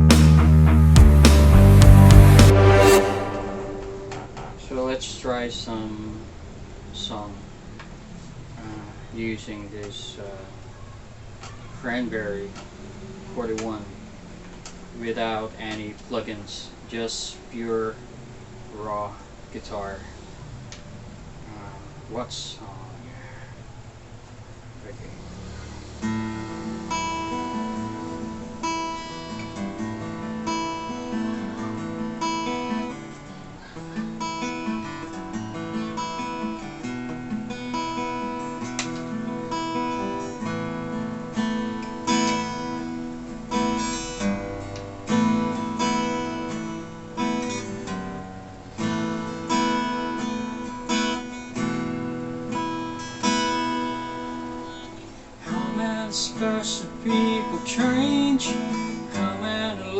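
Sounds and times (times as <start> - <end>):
acoustic guitar strumming: 0.0 - 5.5, 25.4 - 59.9.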